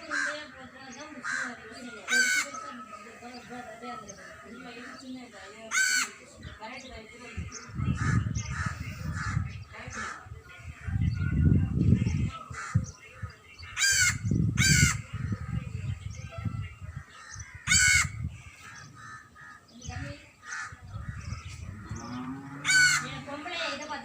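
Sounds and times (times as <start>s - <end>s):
crows cawing: 0.0s - 6.3s, 8.0s - 10.3s, 12.5s - 12.8s, 13.8s - 15.4s, 17.0s - 19.8s, 20.4s - 23.8s
low rumbling noise: 20.8s - 23.5s.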